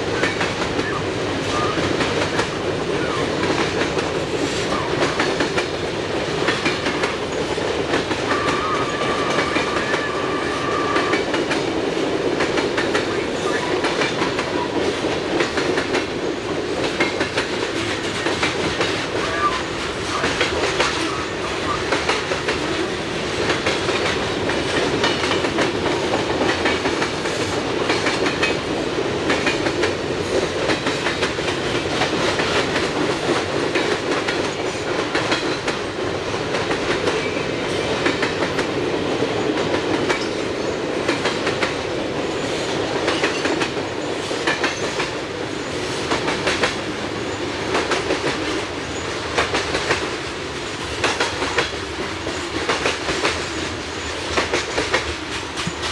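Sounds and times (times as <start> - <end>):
train wheels clicking over rail joints: 0.0 - 55.9.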